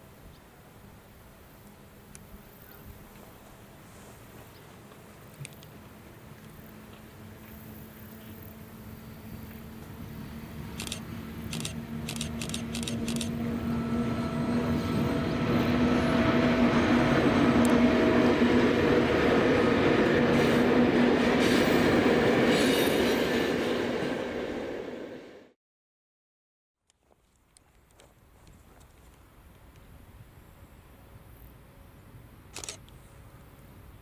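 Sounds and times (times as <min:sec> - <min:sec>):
constant low hum: 0:00.0 - 0:16.2
train passing: 0:05.8 - 0:25.6.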